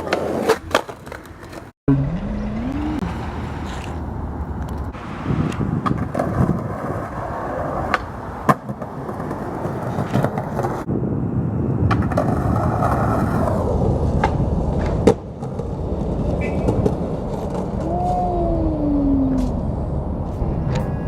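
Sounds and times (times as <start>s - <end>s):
skateboard wheels rumbling: 0.0s - 1.7s, 2.9s - 20.7s
skateboard clacks: 4.6s - 10.9s.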